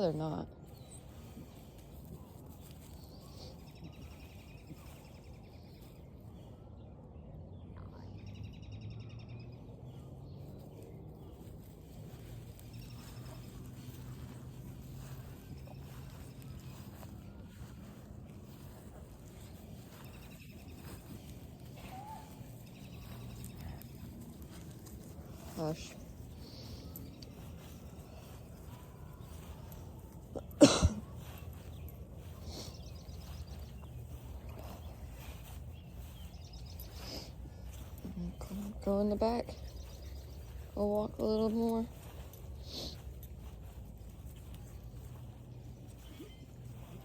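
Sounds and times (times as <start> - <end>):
faint low outdoor rumble: 0.0 - 47.0
faint high chirping trills: 11.5 - 30.4.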